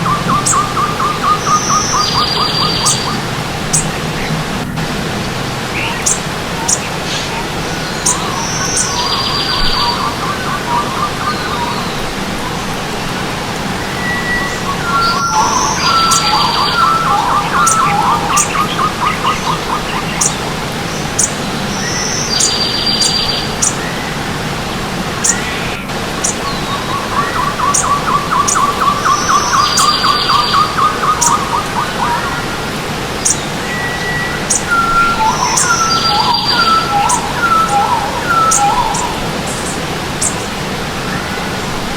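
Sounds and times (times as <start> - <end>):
bird rapid trill: 0.0 - 4.4, 5.2 - 12.2, 14.0 - 24.0, 25.2 - 32.5, 33.2 - 40.5
thin high bird chirps: 0.0 - 4.4, 5.7 - 12.1, 13.9 - 20.4, 21.0 - 24.0, 25.2 - 32.5, 33.2 - 40.5
buzzy high bird call: 0.0 - 12.1, 13.9 - 20.4, 25.2 - 32.6, 33.2 - 40.4
stream water running: 0.0 - 41.9.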